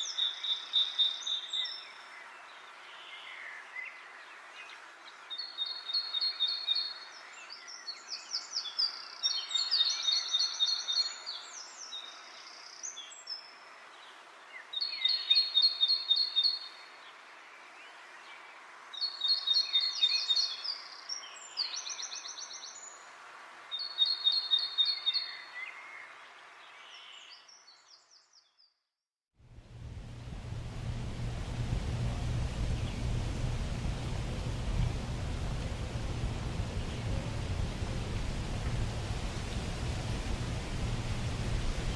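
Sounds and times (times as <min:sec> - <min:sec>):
wind rustling leaves: 0:00.0 - 0:27.9, 0:29.4 - 0:41.9
low steady humming: 0:29.4 - 0:41.9.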